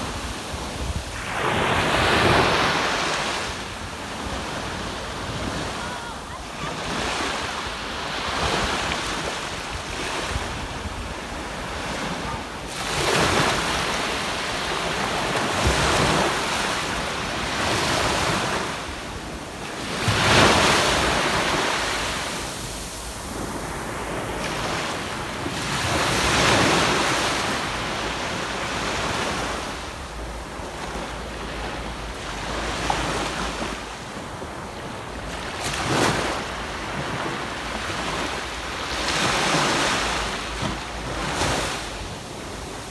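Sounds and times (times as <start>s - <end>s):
wind rumbling on microphone: 0.0s - 6.1s
sea waves breaking on beach: 0.0s - 42.9s.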